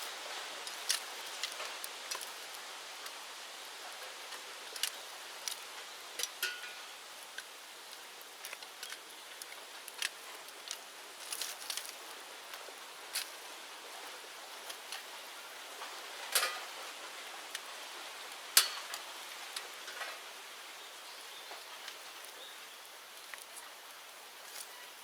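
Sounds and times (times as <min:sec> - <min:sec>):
bonfire hissing and crackling: 0:00.0 - 0:25.0
sharp pops from fire: 0:18.6 - 0:19.0.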